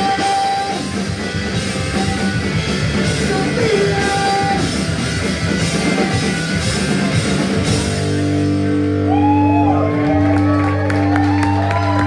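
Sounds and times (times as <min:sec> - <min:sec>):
distorted electric guitars: 0:00.0 - 0:12.0
drum kit: 0:00.0 - 0:12.0
punk rock band playing live: 0:00.0 - 0:12.0.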